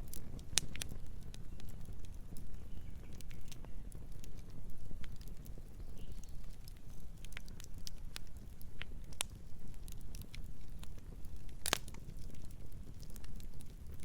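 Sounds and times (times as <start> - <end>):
campfire burning: 0.0 - 14.0.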